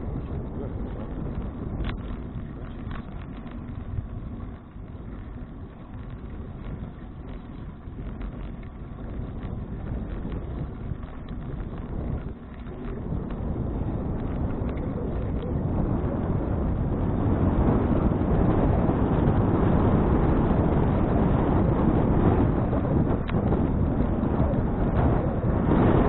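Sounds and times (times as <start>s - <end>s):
bicycle tyre road rumble: 0.0s - 26.0s
wind buffeting microphone: 0.0s - 26.0s
small ticks: 0.1s - 15.5s.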